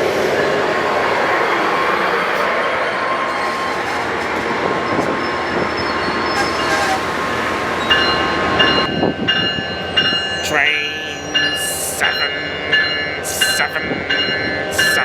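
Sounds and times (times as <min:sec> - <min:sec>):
train wheels rushing on rail: 0:00.0 - 0:10.5.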